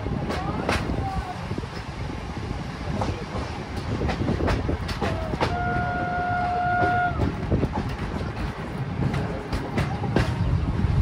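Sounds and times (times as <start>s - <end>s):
train wheels clacking over rail joints: 0.0s - 2.0s, 2.8s - 10.9s
train horn blast: 5.4s - 7.3s.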